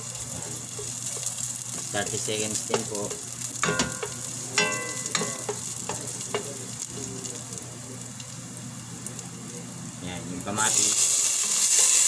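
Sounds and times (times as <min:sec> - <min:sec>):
garlic and onion sizzling: 0:00.0 - 0:12.0
wooden spatula knocking on pot: 0:03.6 - 0:06.5.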